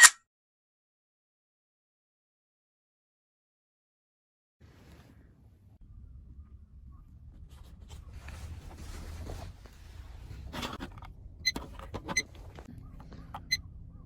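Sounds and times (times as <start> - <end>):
low rumble: 5.4 - 11.5
rustling and handling noises: 7.4 - 13.6.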